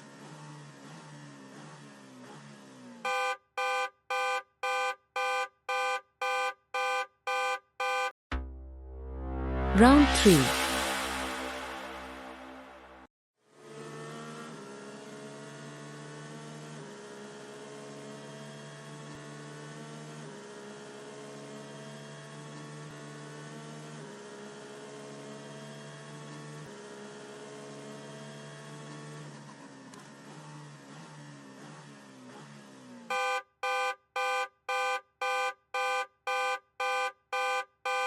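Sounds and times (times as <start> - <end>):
droning synth chords: 8.3 - 13.1.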